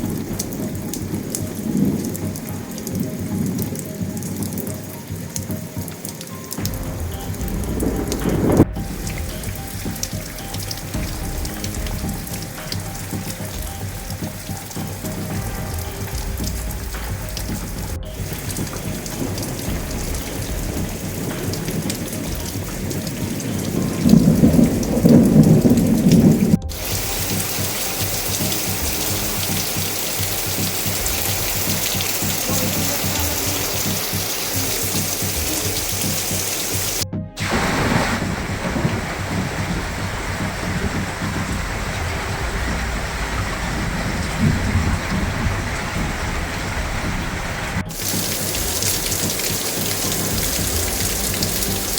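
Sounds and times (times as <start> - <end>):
heavy rain falling: 0.0 - 51.9
low rumble of thunder: 6.6 - 51.9.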